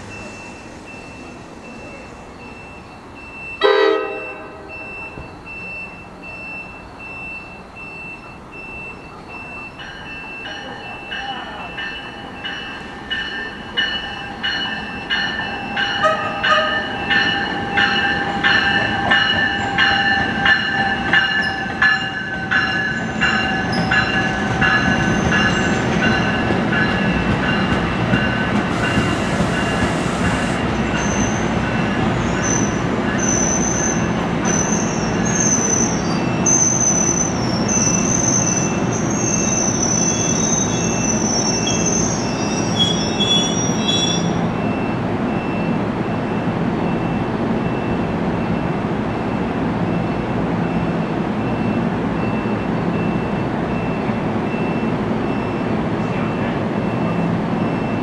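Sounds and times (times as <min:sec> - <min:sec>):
train cars rumbling: 0:00.0 - 0:58.0
wheel squeal: 0:28.8 - 0:31.5, 0:32.2 - 0:44.8.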